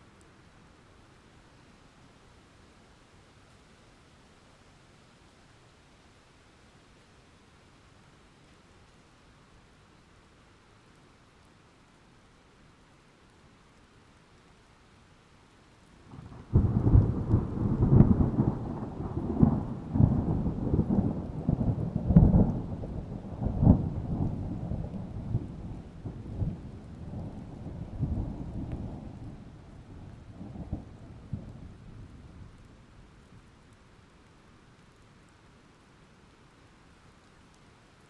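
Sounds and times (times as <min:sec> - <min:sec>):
thunder clap and rumble: 0:16.1 - 0:32.6.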